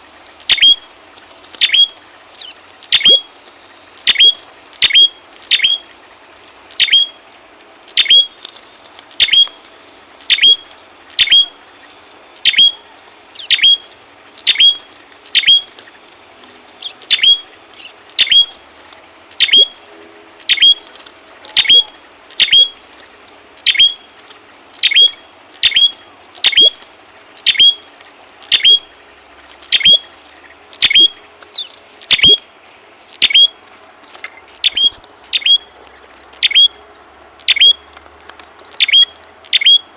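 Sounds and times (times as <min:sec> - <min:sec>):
sharp high-pitched bird chip: 0:01.6 - 0:03.3, 0:04.1 - 0:05.8, 0:06.8 - 0:07.2, 0:08.0 - 0:08.4, 0:09.2 - 0:09.5, 0:10.3 - 0:10.6, 0:11.2 - 0:11.5, 0:12.4 - 0:12.8, 0:13.4 - 0:15.7, 0:16.8 - 0:18.6, 0:19.4 - 0:19.8, 0:21.6 - 0:22.8, 0:24.8 - 0:26.8, 0:27.4 - 0:27.9, 0:28.5 - 0:28.9, 0:29.7 - 0:30.0, 0:30.8 - 0:32.4, 0:37.5 - 0:37.8.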